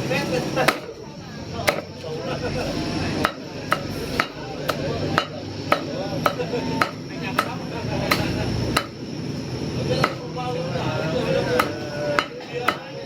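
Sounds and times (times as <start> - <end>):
cleaver chopping meat on board: 0.6 - 0.9, 1.7 - 1.9, 3.2 - 9.0, 10.0 - 10.3, 11.5 - 13.0.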